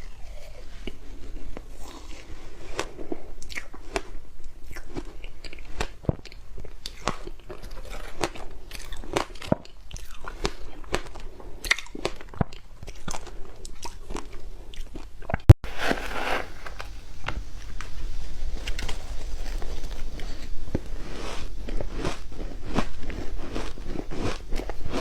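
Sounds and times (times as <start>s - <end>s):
teeth crunching ice: 21.0s - 25.0s.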